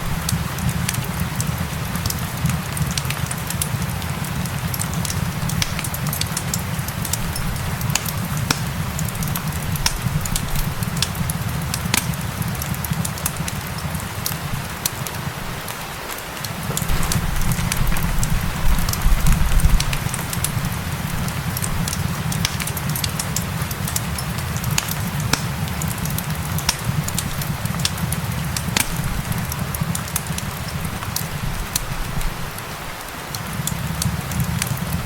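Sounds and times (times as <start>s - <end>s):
rain hissing: 0.0s - 35.0s
wood fire crackling: 0.0s - 35.0s.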